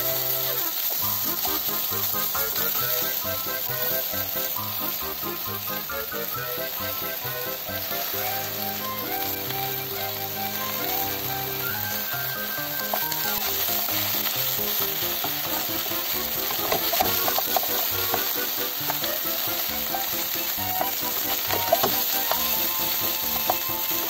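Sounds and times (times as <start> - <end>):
food sizzling in a frying pan: 0.0 - 24.0
spatula clicking on pan: 12.8 - 19.4, 20.0 - 24.0.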